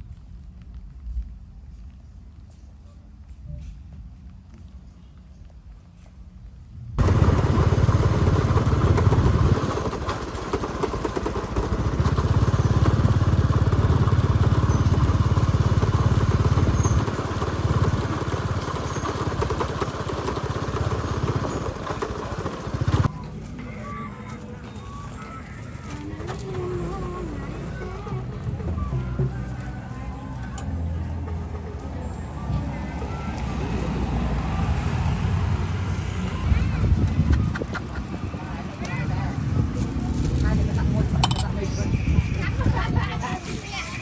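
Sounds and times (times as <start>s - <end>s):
motorbike engine rumbling: 7.0s - 23.4s, 31.0s - 44.0s.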